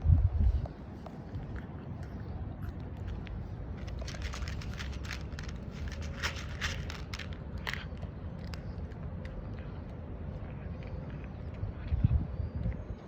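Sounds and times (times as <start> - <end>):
steady low rumble: 0.0 - 13.0
cat crunching dry food: 1.3 - 10.0.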